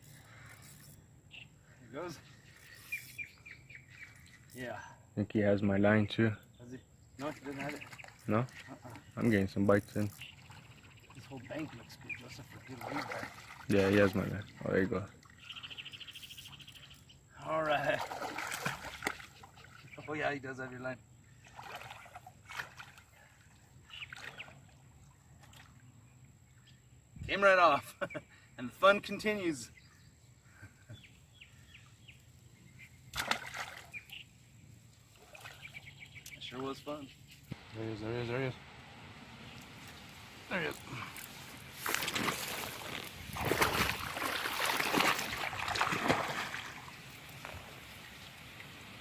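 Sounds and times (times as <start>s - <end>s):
river water sloshing: 7.2s - 16.0s, 17.6s - 20.1s, 21.3s - 26.0s, 33.1s - 34.3s, 34.9s - 36.4s, 38.9s - 49.0s
water splashing from thrashing fish: 12.8s - 14.0s, 17.9s - 19.4s, 33.2s - 34.0s, 41.8s - 47.0s.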